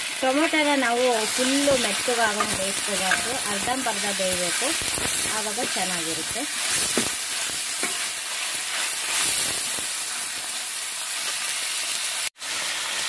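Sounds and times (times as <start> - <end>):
vegetables sizzling in hot oil: 0.0 - 13.0
steel ladle stirring: 1.2 - 7.0.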